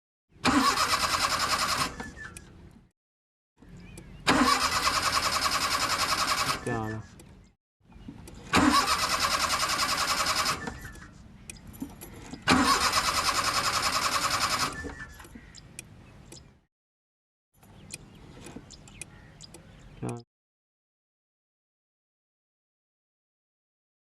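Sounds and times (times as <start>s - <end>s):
car starter motor cranking: 0.4s - 2.6s, 4.2s - 6.7s, 8.2s - 11.0s, 12.1s - 15.3s.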